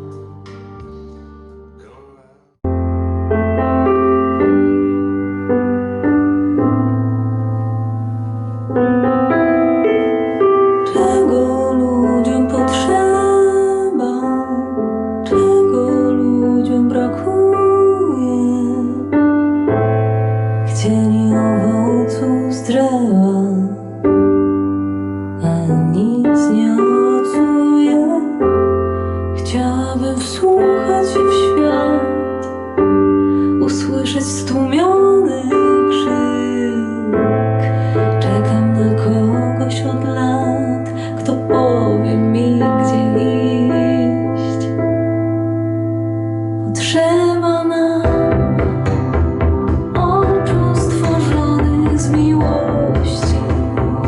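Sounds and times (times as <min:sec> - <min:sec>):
bass line: 0:00.0 - 0:04.2, 0:48.0 - 0:54.0
keyboard chords: 0:00.0 - 0:54.0
slow song through speakers: 0:00.0 - 0:54.0.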